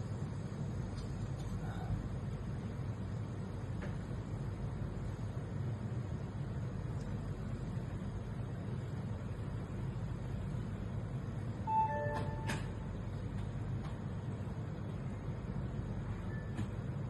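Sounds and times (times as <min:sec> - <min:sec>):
steady low hum: 0:00.0 - 0:17.0
short electronic beep: 0:11.7 - 0:12.9.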